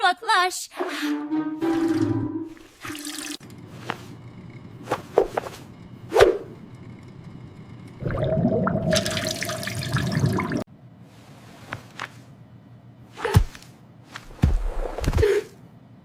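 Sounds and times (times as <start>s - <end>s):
cartoon toilet flush: 1.6s - 3.4s, 8.0s - 10.7s
short swishes and hits: 4.9s - 6.6s.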